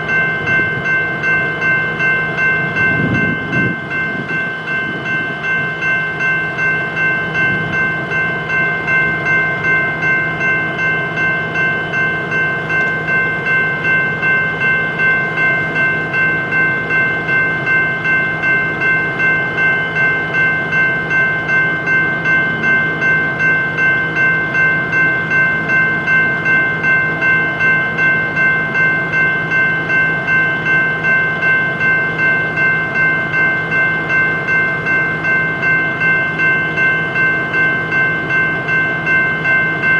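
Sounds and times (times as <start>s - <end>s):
crossing bell ringing: 0.0s - 39.9s
train rumbling by: 0.0s - 39.9s.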